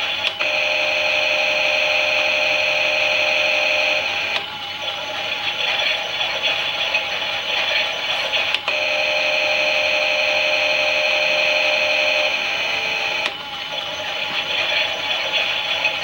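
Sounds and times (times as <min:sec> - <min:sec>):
toy washing machine motor whine: 0:00.0 - 0:16.0
click: 0:08.5 - 0:08.8, 0:13.2 - 0:13.4.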